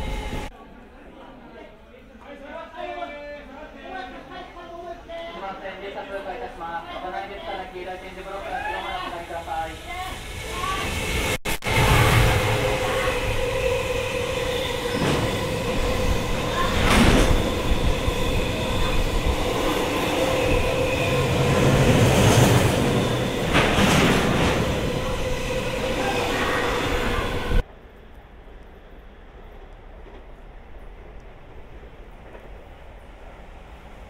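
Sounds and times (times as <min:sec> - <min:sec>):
train wheels rumbling on rail: 0:00.0 - 0:00.5, 0:07.9 - 0:34.0
wheels clacking over rail joints: 0:11.7 - 0:27.6.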